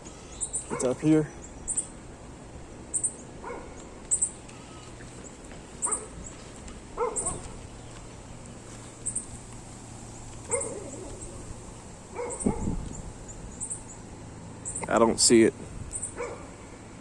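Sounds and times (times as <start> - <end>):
dog barking: 0.7 - 1.0, 3.4 - 3.8, 5.8 - 6.2, 7.0 - 7.6, 10.5 - 11.3, 12.1 - 12.8, 16.1 - 16.6.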